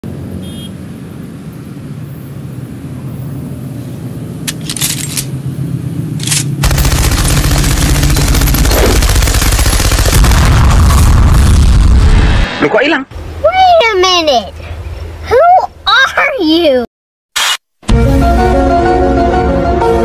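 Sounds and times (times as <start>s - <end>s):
machine-gun fire: 6.6s - 11.7s.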